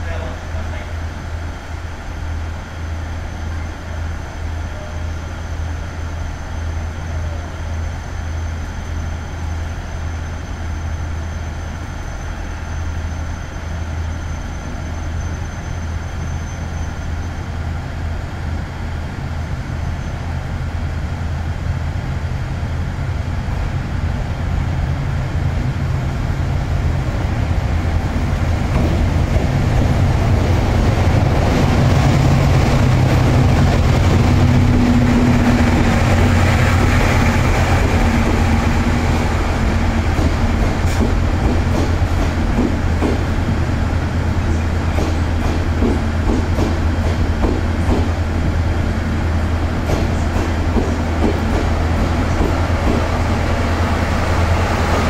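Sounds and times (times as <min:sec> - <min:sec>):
electric locomotive running: 0:24.4 - 0:55.0.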